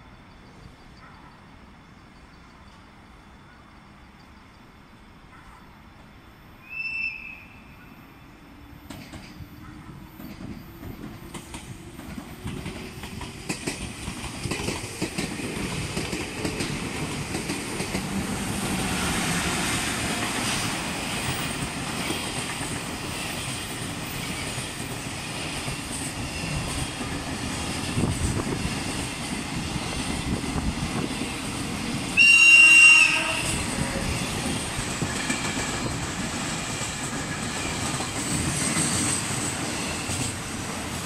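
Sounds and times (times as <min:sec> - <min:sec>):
freight train wheels clicking on rails: 0:08.8 - 0:41.0
train horn: 0:32.2 - 0:34.3.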